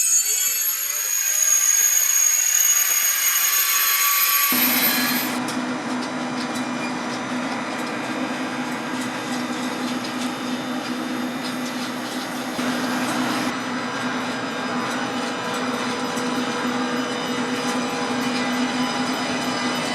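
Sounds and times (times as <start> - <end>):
train running on rails: 0.0 - 19.9.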